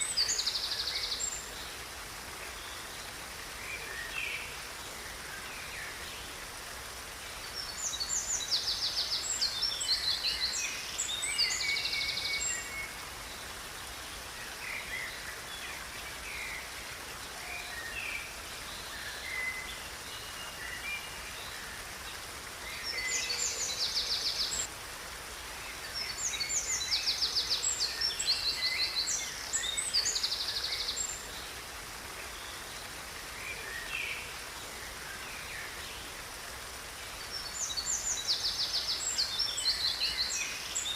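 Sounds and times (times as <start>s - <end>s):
songbirds trilling and chirping: 0.0s - 24.7s
steady background hiss: 0.0s - 40.9s.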